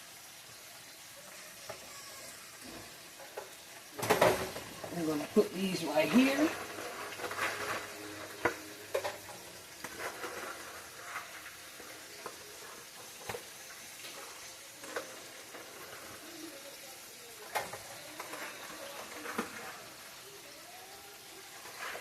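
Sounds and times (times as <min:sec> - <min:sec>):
chicken frying in hot oil: 0:00.0 - 0:22.0
oil popping: 0:02.6 - 0:16.6.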